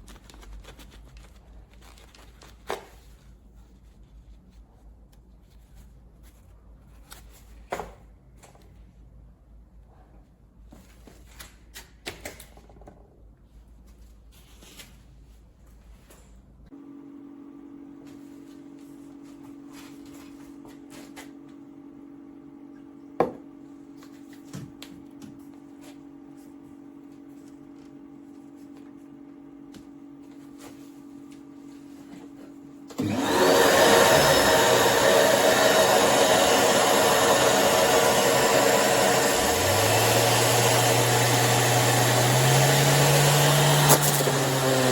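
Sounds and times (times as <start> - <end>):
orbital sander running: 33.0 - 44.9.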